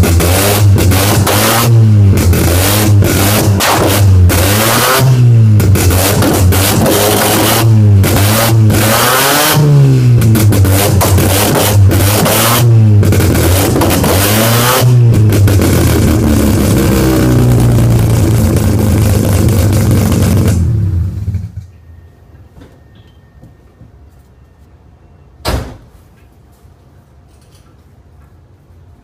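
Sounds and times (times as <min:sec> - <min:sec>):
loud rotary engine running: 0:00.0 - 0:21.3
sharp knock: 0:25.4 - 0:25.8.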